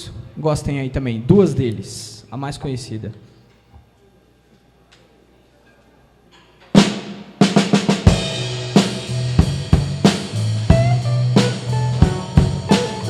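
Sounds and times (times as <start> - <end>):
blues band playing: 6.8 - 13.0
drum and cymbal hit: 6.8 - 13.0
drum fill: 6.8 - 13.0.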